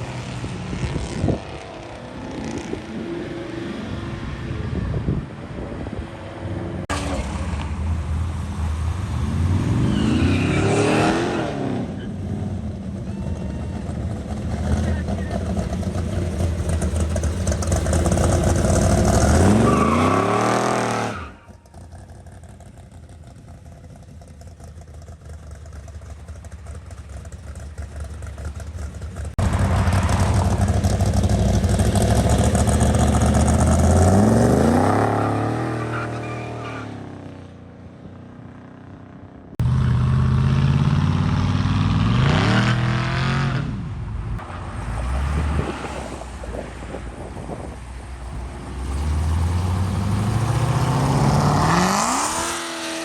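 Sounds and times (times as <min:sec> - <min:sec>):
car engines accelerating hard: 0:00.0 - 0:23.6, 0:24.6 - 0:37.4, 0:38.7 - 0:53.0.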